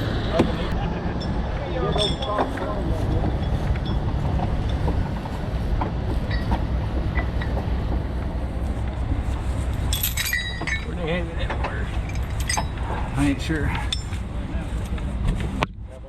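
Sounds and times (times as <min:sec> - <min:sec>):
diesel truck engine rumbling: 0:00.0 - 0:16.0
metallic clinking: 0:01.2 - 0:04.9, 0:09.7 - 0:14.3.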